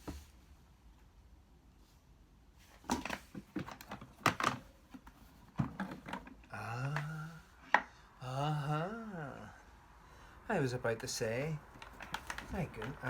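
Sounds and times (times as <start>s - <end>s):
plastic parts clicks and knocks: 2.9s - 7.1s, 11.7s - 13.0s
man humming: 6.5s - 9.7s.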